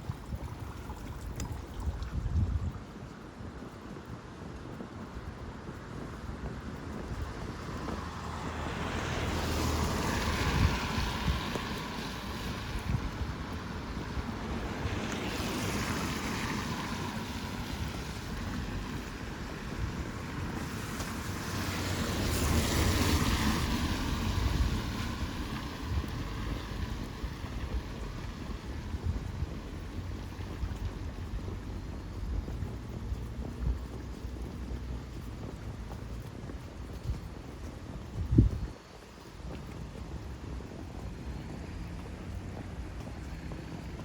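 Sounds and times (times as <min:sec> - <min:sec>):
wind rumble on microphone: 0:00.0 - 0:44.0
tyre hiss on wet road: 0:07.4 - 0:32.4.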